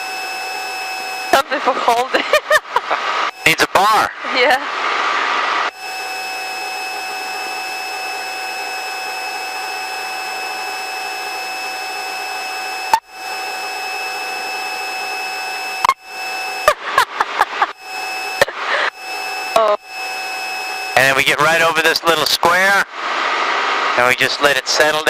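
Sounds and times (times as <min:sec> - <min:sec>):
constant high whine: 0:00.0 - 0:25.0.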